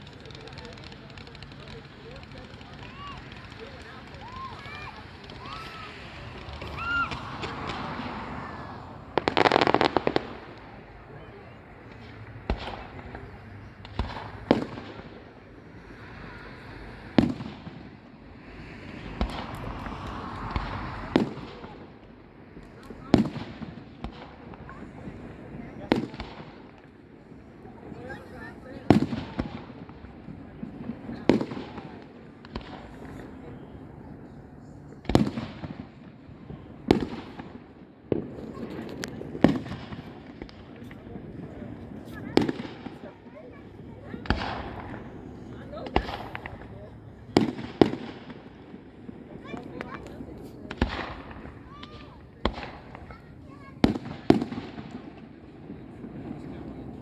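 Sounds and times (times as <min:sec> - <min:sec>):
firework hiss: 0:00.0 - 0:11.1, 0:11.9 - 0:22.0
faint fireworks pops: 0:00.0 - 0:57.0
fireworks booming: 0:00.0 - 0:57.0.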